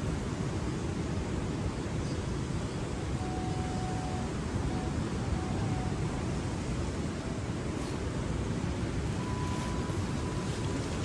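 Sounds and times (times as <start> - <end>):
faint thin tone: 9.1 - 11.0.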